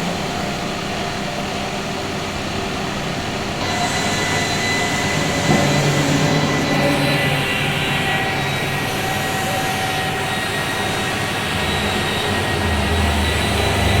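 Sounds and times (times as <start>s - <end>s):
faint machine whine: 0.0s - 14.0s
metal lathe running: 0.0s - 14.0s
deep hum: 11.3s - 14.0s.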